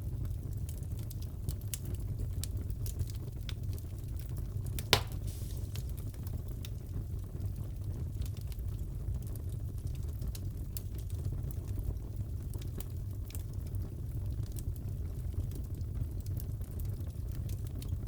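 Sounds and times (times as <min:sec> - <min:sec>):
wood fire crackling: 0:00.1 - 0:18.0
loud pop from fire: 0:04.8 - 0:06.3.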